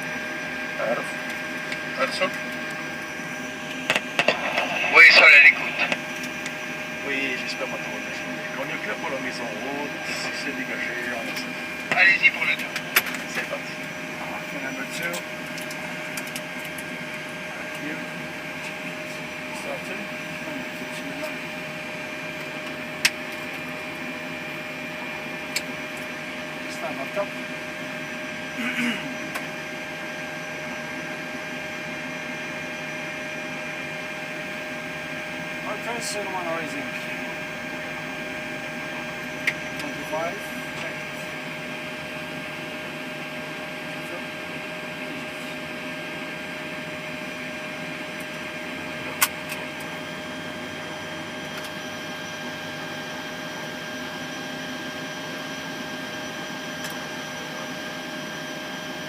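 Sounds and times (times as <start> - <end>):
constant whining tones: 0.0 - 31.4
cockpit hum and hiss: 0.0 - 59.0
flight deck hum: 0.2 - 23.5.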